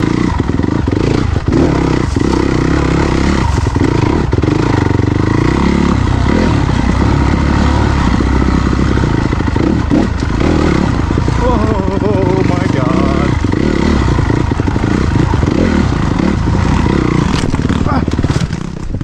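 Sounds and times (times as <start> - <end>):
dirt bike engine revving: 0.0 - 19.0
bike clattering over rough ground: 0.1 - 4.3, 8.8 - 19.0.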